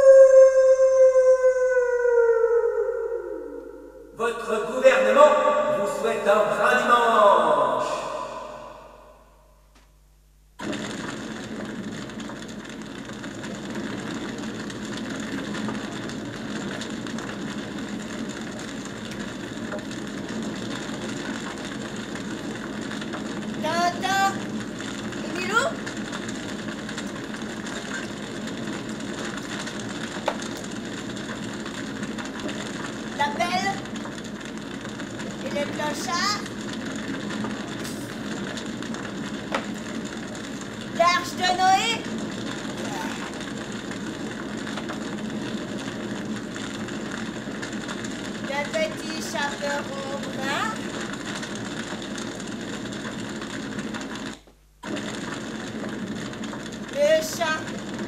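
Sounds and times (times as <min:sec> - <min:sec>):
room hum: 0:00.0 - 0:58.0
faint clicks and rustles: 0:24.2 - 0:58.0.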